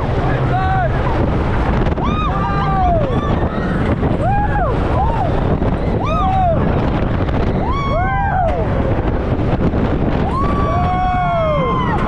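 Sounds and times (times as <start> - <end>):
wind roaring over microphone: 0.0 - 12.0
riders screaming: 10.2 - 12.0.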